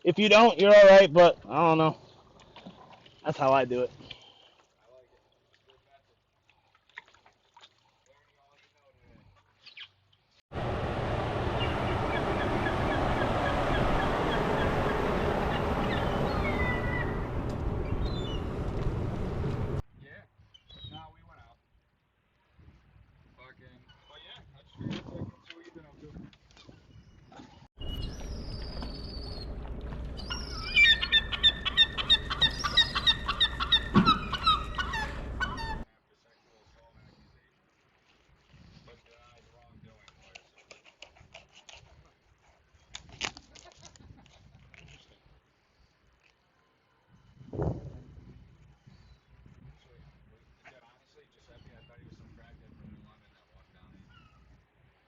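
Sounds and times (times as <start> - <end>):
steady low hum: 10.6 - 19.8
wind buffeting microphone: 10.6 - 19.8, 47.4 - 48.6
flock of birds calling: 11.3 - 19.8, 30.1 - 35.8.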